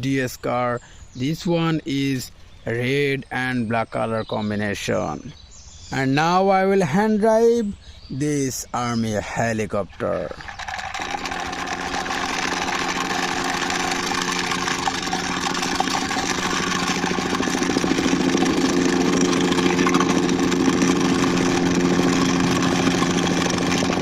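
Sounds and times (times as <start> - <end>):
steady engine-like hum: 10.2 - 24.0.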